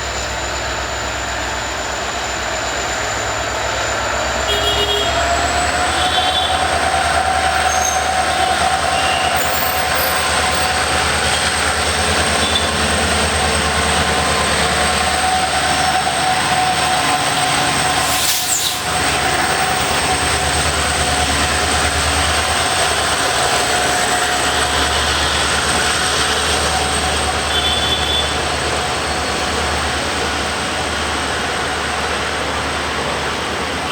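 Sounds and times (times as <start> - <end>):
high-pitched wheel squeal: 0.0 - 20.6, 26.4 - 29.6
train coaches rumbling on rails: 0.0 - 33.9.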